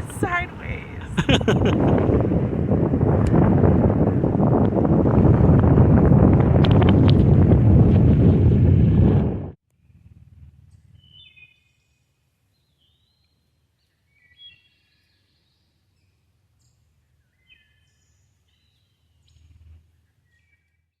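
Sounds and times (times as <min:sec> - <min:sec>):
low wind rumble: 0:00.0 - 0:10.4.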